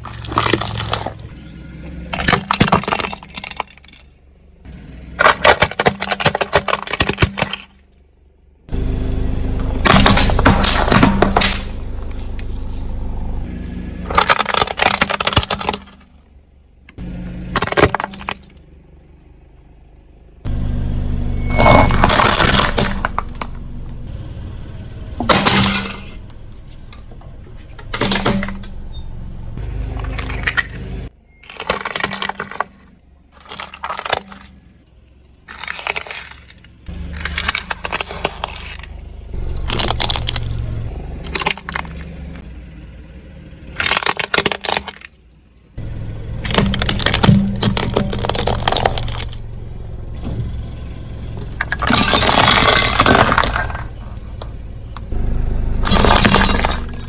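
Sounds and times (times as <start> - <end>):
car engine running low: 0.0 - 57.0
car tyre crushing objects: 0.0 - 57.0.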